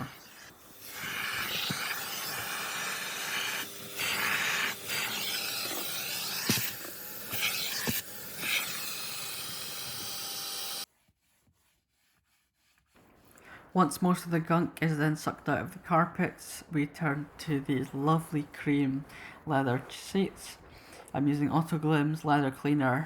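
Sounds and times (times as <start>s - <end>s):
wet vacuum sucking: 0.0s - 14.4s.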